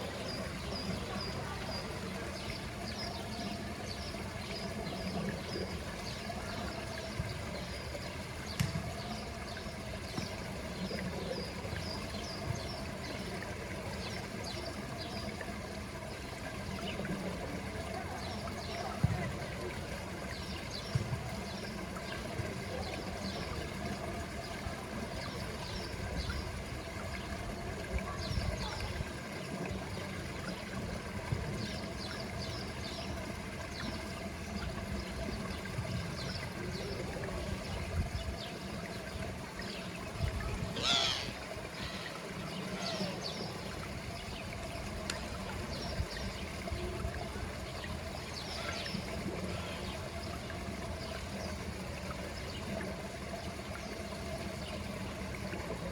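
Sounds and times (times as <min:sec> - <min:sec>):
water trickling: 0:00.0 - 0:55.9
sweeping bird call: 0:40.8 - 0:43.4.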